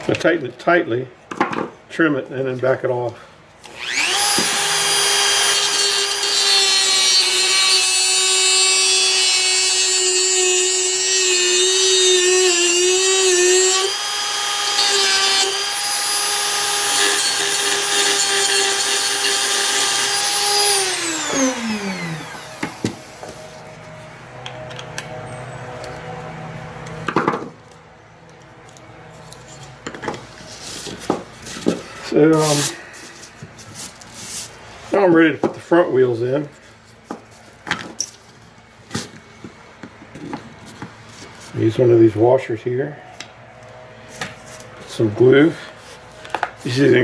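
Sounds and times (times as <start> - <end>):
rotary tool whining: 3.6 - 27.0.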